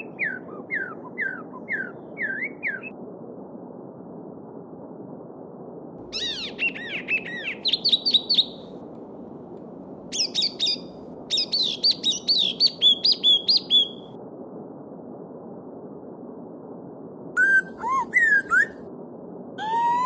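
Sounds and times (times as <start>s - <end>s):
songbird whistling: 0.0s - 2.9s, 6.1s - 8.7s, 10.1s - 14.1s, 17.4s - 18.8s.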